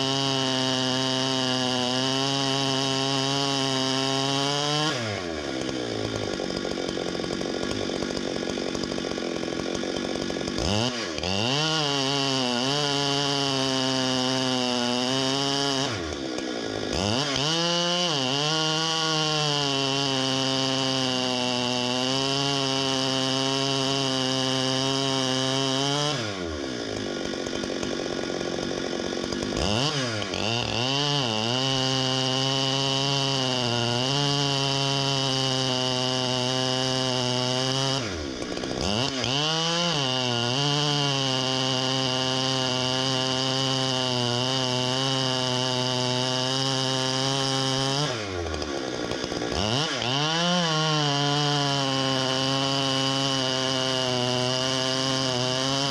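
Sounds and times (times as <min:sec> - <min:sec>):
chainsaw idling: 0:00.0 - 0:55.9
chainsaw revving and cutting: 0:00.0 - 0:55.9.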